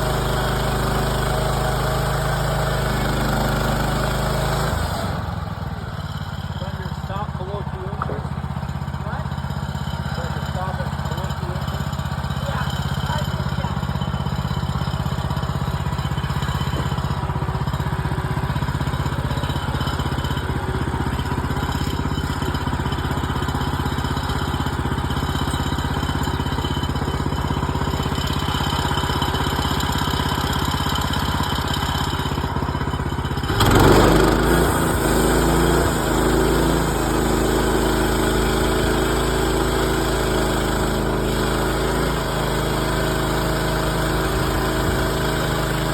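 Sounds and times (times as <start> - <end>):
sawmill gas engine running: 0.0 - 45.9.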